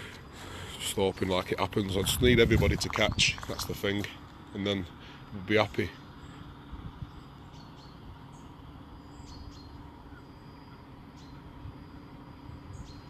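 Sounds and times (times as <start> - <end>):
low background hum: 0.0 - 13.0
faint bird chirps: 4.4 - 13.0.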